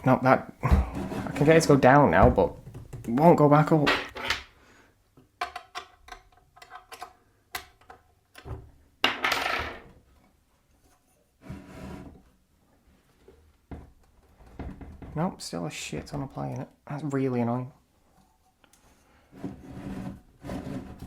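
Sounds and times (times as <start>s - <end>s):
metal scraping rub: 0.6s - 1.8s.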